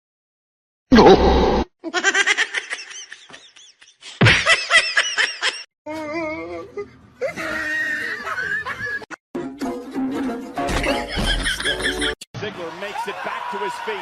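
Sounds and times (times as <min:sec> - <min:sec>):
rapid laughter: 0:07.2 - 0:09.1, 0:10.8 - 0:12.2.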